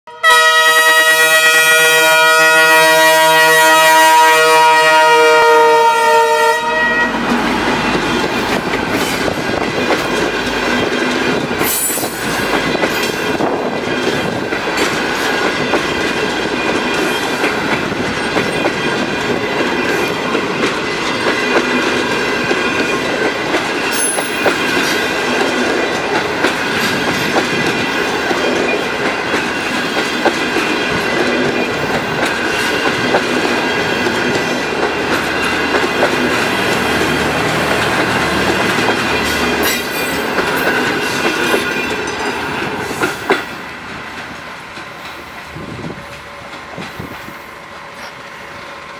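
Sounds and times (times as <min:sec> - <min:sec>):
passenger train rumbling past: 0:00.2 - 0:48.9
wheels clacking over rail joints: 0:07.2 - 0:47.3.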